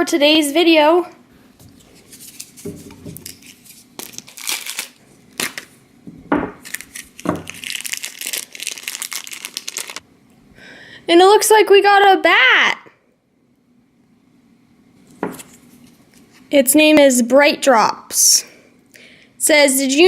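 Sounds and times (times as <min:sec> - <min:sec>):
plastic wrapper tearing and crinkling: 0:02.1 - 0:05.8, 0:06.6 - 0:10.0.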